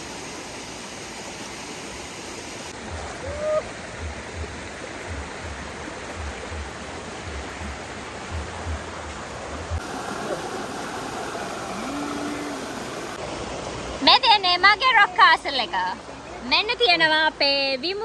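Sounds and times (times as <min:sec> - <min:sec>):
stream water rushing: 0:00.0 - 0:18.0
soft low thumps: 0:03.9 - 0:09.8.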